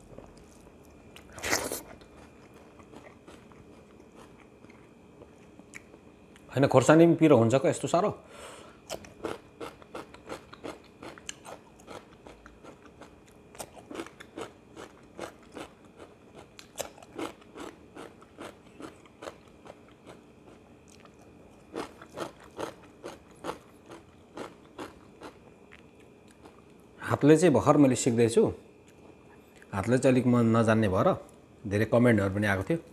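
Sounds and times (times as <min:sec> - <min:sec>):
chewing raw cucumber crunches: 0:00.0 - 0:06.5, 0:08.8 - 0:26.8.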